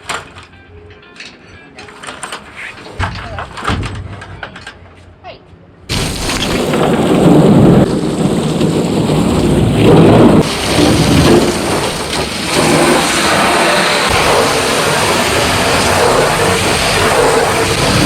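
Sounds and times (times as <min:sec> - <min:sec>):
water spraying on metal hull: 0:05.9 - 0:18.0.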